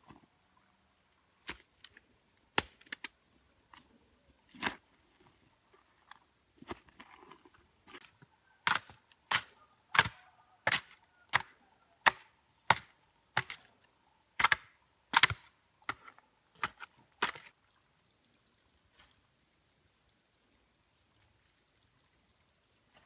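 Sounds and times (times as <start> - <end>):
hand tool chopping wood: 8.6 - 13.6, 14.4 - 17.5.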